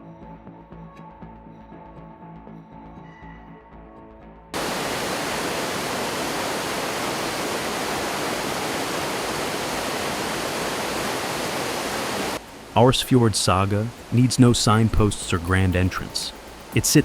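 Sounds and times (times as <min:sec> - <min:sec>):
rush of flowing water: 0:04.6 - 0:17.0
faint music: 0:12.4 - 0:17.0.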